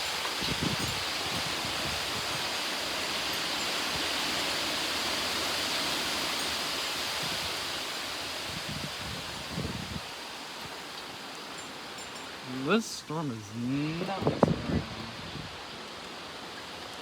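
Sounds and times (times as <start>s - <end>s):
heavy rain pouring: 0.0s - 17.0s
wind gusts hitting microphone: 0.4s - 2.5s, 8.4s - 10.1s, 14.0s - 15.8s
strong wind: 0.4s - 2.6s, 7.1s - 10.2s, 14.0s - 15.8s.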